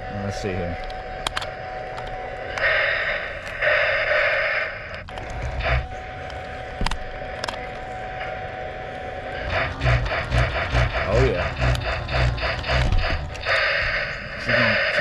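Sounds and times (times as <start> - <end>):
faint high hum: 0.0 - 15.0
hissing bursts: 0.0 - 15.0
sharp clicks: 0.8 - 2.8, 9.4 - 15.0.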